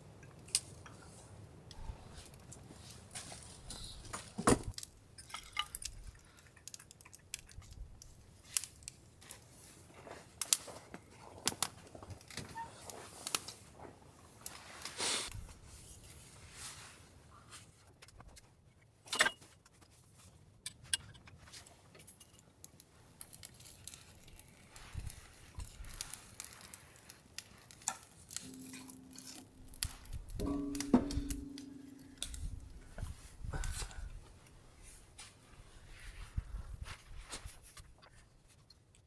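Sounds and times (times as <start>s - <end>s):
light clicks and clinks: 20.6s - 34.1s
low steady tone: 28.4s - 33.3s.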